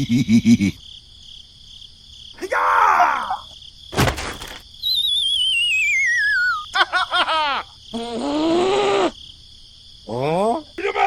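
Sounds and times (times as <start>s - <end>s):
falling slide whistle: 4.8s - 6.7s.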